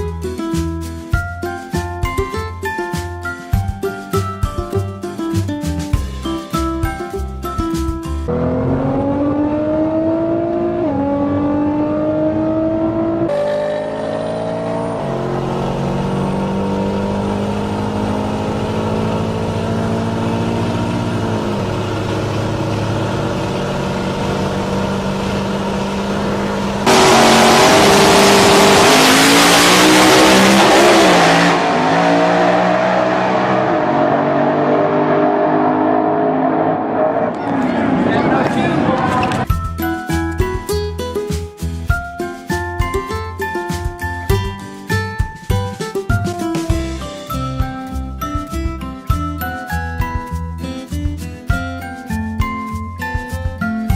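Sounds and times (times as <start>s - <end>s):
car engine accelerating hard: 8.3s - 39.5s
loud rushing noise: 26.8s - 39.5s.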